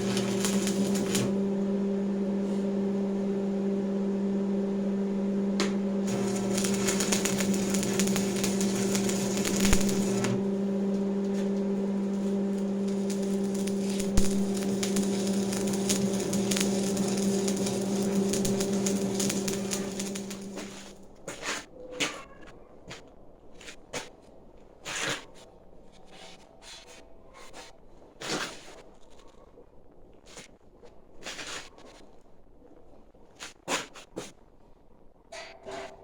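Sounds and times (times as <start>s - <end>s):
machine humming: 0.0s - 21.0s
harsh scratchy noise: 6.1s - 10.4s.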